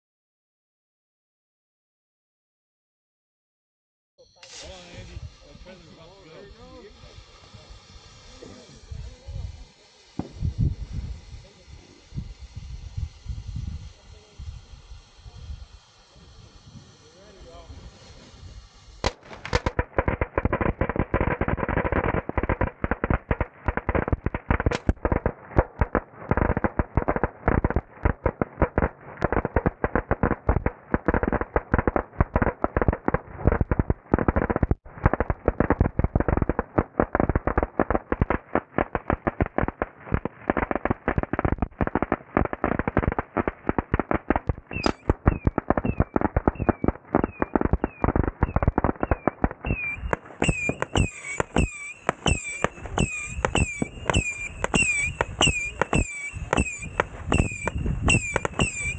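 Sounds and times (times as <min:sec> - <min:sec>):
firecrackers banging: 0:16.1 - 0:58.9
short falling high squeals: 0:44.7 - 0:58.9.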